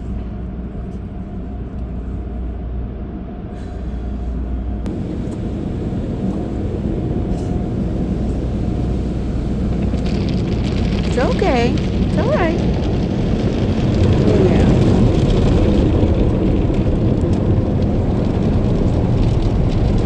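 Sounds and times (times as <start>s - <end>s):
car wash machinery rumbling: 3.6s - 20.0s
rushing water noise: 4.9s - 20.0s.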